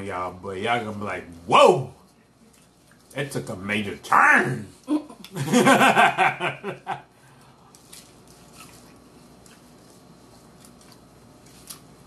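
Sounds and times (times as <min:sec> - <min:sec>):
faint chewing of crunchy shells: 0:07.2 - 0:12.0.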